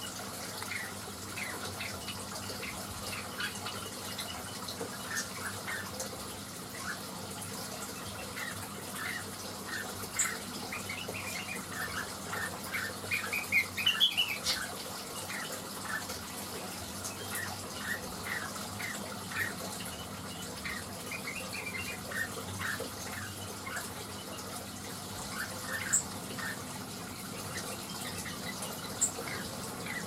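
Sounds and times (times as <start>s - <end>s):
bird chirping song: 7.8s - 16.2s, 17.0s - 26.7s.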